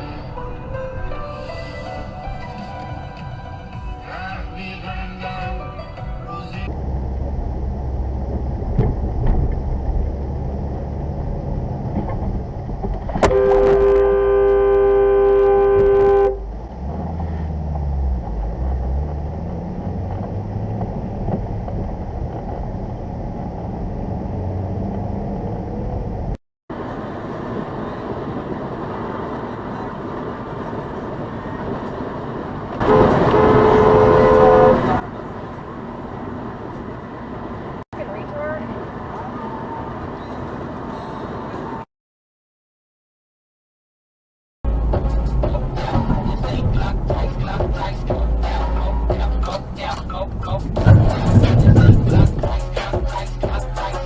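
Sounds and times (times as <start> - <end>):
road and engine noise: 0.0 - 41.9, 44.6 - 54.0
two-note car horn blast: 13.2 - 16.4, 32.8 - 35.0.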